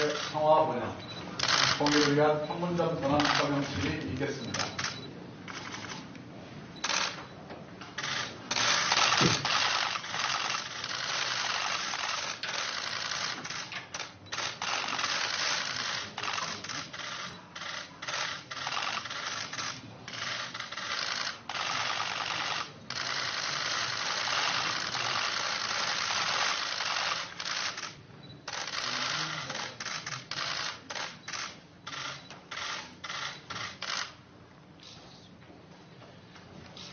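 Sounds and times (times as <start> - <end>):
camera shutters clicking: 0.0 - 0.3, 1.4 - 2.3, 3.0 - 6.2, 6.8 - 7.3, 7.9 - 34.2.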